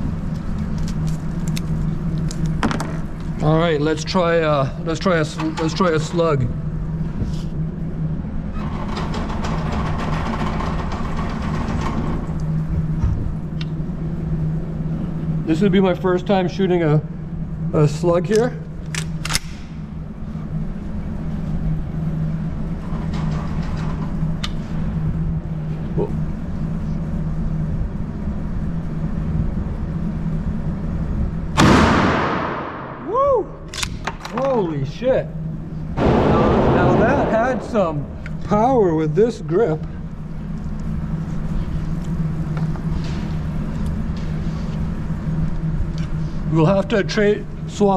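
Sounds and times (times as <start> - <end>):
low mechanical hum: 0.0 - 47.9
shotgun shot with echo: 31.6 - 33.0, 36.0 - 38.4.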